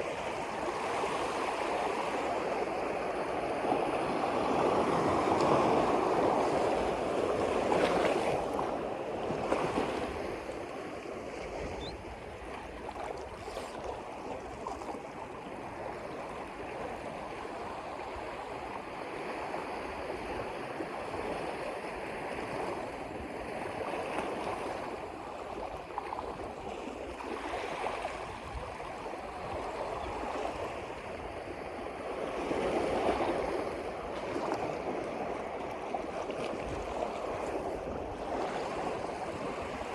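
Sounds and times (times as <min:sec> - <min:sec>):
water washing and lapping: 0:07.6 - 0:15.4.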